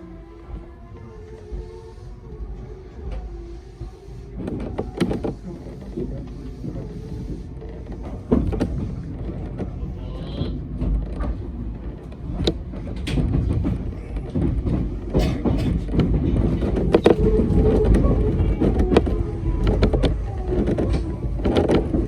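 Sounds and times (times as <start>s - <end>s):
train hum: 0.0s - 22.0s
train rumble: 0.0s - 22.0s
wheels clacking over rails: 3.9s - 22.0s.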